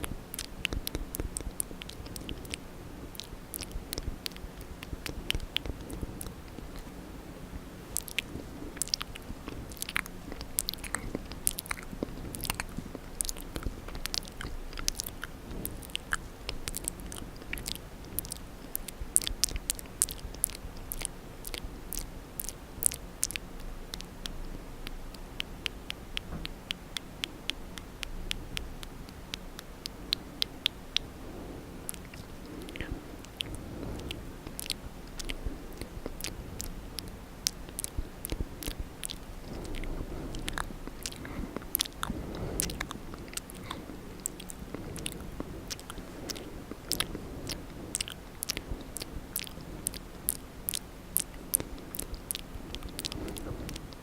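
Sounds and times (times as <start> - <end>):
wet mouth clicks and smacks: 0.0 - 7.0, 7.9 - 31.1, 31.9 - 54.0.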